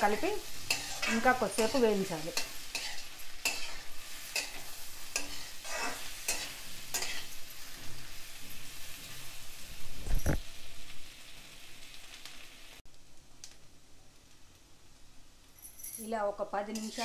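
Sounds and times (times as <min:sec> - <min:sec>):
frying oil sizzling: 0:00.0 - 0:17.0
metal spatula scraping a wok: 0:00.1 - 0:09.3, 0:16.6 - 0:17.0.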